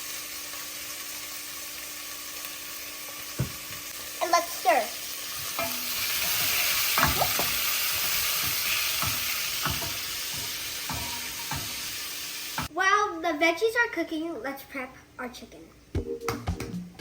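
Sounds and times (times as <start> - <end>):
vegetables sizzling in oil: 0.0 - 12.7
spoon scraping and knocking pot: 5.4 - 11.9.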